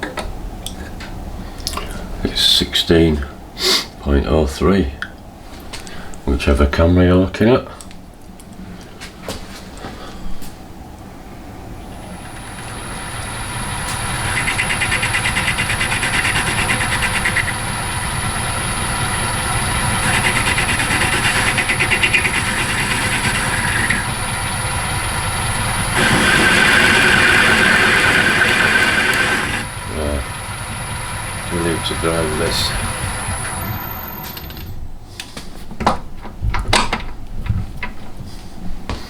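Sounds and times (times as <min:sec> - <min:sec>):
lathe running with high whine: 0:11.8 - 0:34.8
lathe tool cutting metal: 0:12.0 - 0:34.7.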